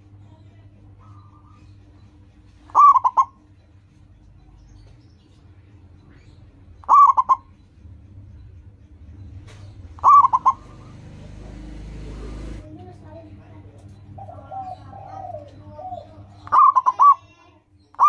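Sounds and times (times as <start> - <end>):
faint low hum: 0.0 - 18.0
dove cooing: 2.6 - 3.4, 6.8 - 7.6, 9.6 - 12.7, 14.0 - 17.3.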